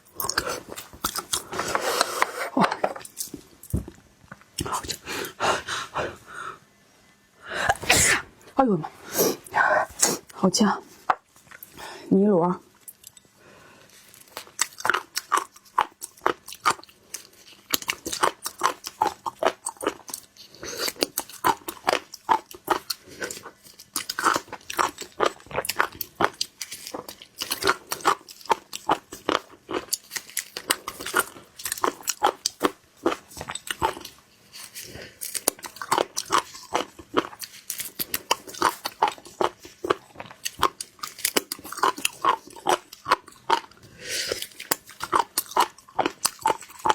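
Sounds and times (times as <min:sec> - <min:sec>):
wet chewing and smacking: 0:00.0 - 0:01.7, 0:14.1 - 0:46.9.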